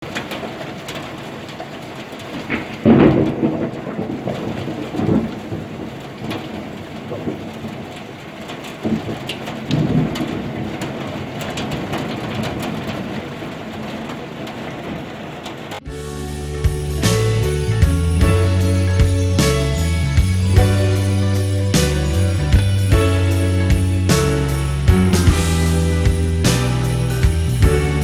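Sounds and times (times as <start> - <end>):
steady rain: 0.0 - 28.0
thunder rolling: 0.1 - 15.9, 16.6 - 28.0.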